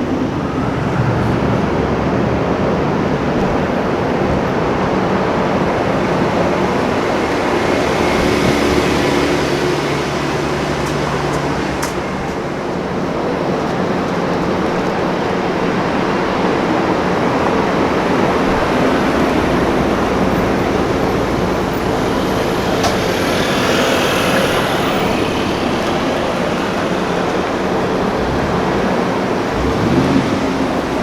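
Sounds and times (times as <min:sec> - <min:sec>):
street traffic noise: 0:00.0 - 0:31.0
car engine running: 0:01.4 - 0:31.0.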